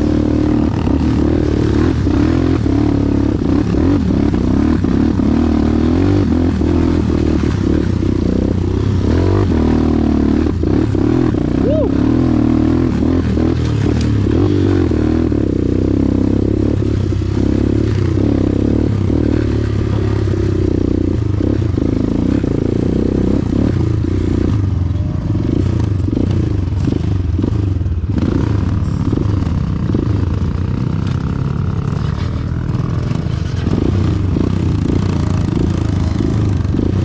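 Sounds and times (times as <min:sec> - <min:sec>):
motorcycle engine under load: 0:12.7 - 0:37.0.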